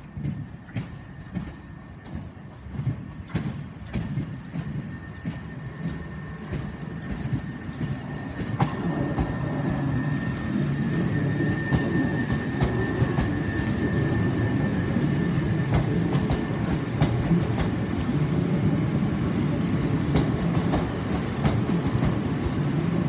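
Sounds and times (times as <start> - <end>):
electric train rumble: 0.0 - 23.0
high-pitched whine: 4.7 - 23.0.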